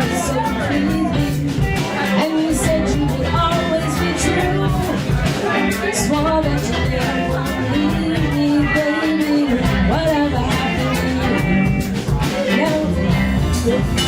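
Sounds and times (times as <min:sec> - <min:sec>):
drums steady beat: 0:00.0 - 0:14.0
live rock band playing: 0:00.0 - 0:14.0.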